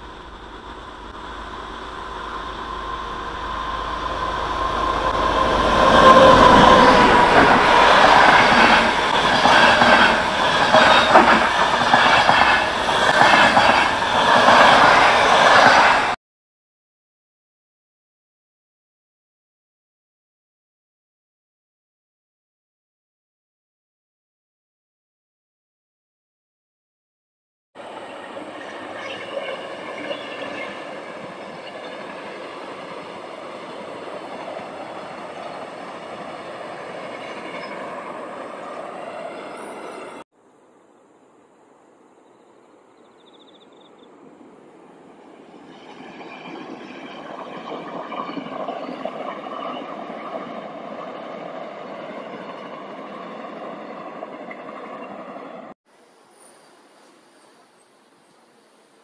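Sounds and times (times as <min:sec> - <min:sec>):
faint high whine: 0:00.0 - 0:07.4
wheels rumbling on rail: 0:00.0 - 0:16.2, 0:27.8 - 0:40.3, 0:44.2 - 0:55.7.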